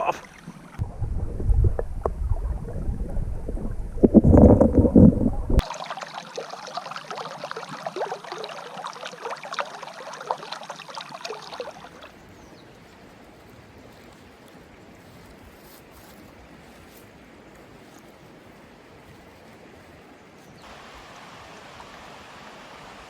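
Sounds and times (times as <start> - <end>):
water babbling over rocks: 0.0 - 12.9, 20.6 - 23.0
water sloshing and splashing: 0.0 - 13.0.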